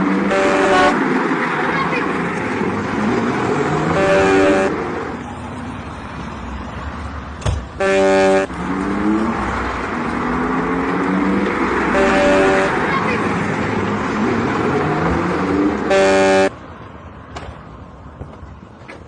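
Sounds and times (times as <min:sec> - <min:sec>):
road traffic noise: 0:00.0 - 0:19.0
vehicle horn blasts: 0:00.3 - 0:01.0, 0:04.0 - 0:04.7, 0:07.8 - 0:08.5, 0:11.9 - 0:13.2, 0:15.9 - 0:16.5
vehicle engine accelerating: 0:07.8 - 0:16.5.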